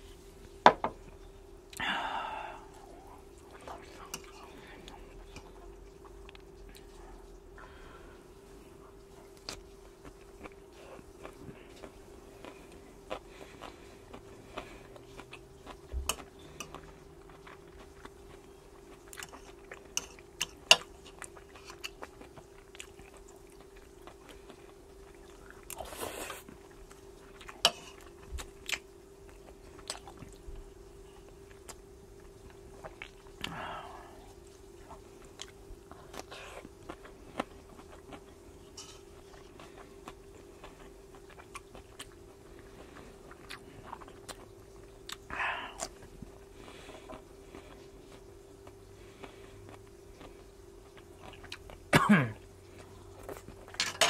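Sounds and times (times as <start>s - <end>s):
faint steady hum: 0.0s - 54.0s
person chewing and smacking: 8.9s - 51.9s, 52.8s - 53.8s.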